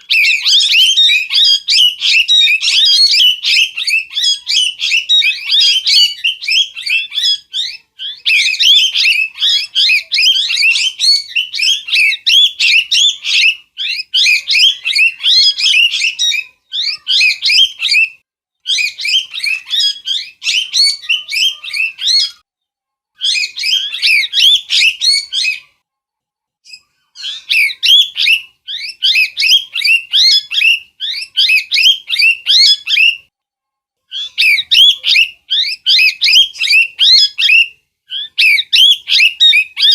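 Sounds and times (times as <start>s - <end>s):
parrot chirping and squawking: 0.0s - 22.4s, 23.2s - 25.7s, 26.7s - 33.2s, 34.1s - 39.9s.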